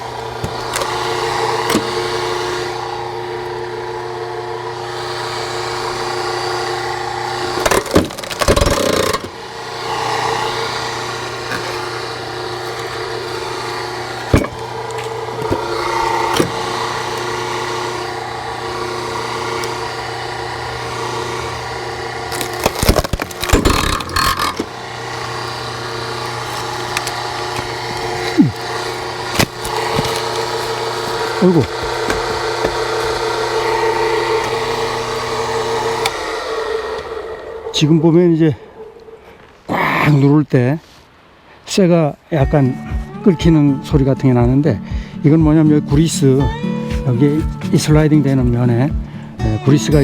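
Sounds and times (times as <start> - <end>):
log splitter engine running: 0.0 - 39.3, 42.4 - 50.0
wood cracking sharply: 7.5 - 9.4, 22.2 - 24.8, 25.6 - 35.1.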